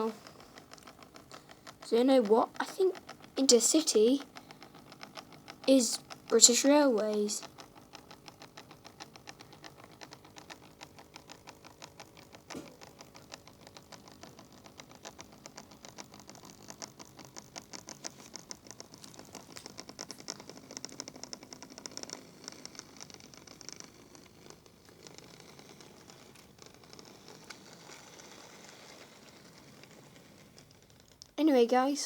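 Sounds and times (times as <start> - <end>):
faint motor hum: 0.0 - 32.0
model train wheels clicking on track: 0.0 - 32.0.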